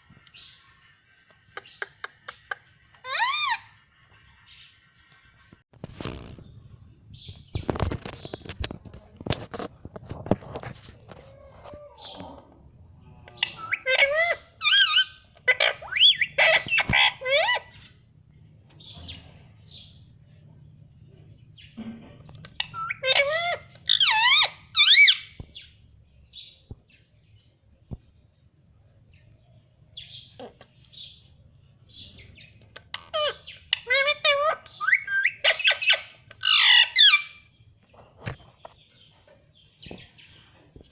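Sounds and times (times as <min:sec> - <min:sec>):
parrot chirping and squawking: 0:00.3 - 0:05.4, 0:13.3 - 0:17.9, 0:22.4 - 0:25.4, 0:32.5 - 0:37.5.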